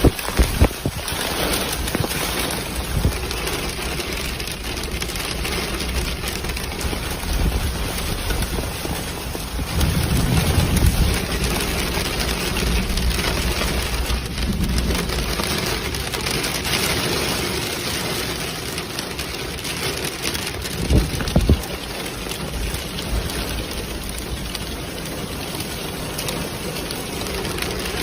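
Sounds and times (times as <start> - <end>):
low rumble: 0.0 - 16.9
steady rain: 0.0 - 28.0.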